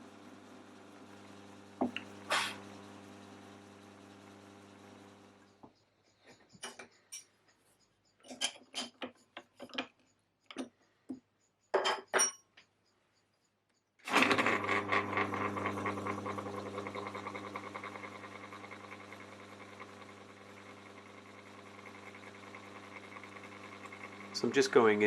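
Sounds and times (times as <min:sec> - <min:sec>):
milling machine motor humming: 0:00.0 - 0:05.5, 0:14.1 - 0:25.0.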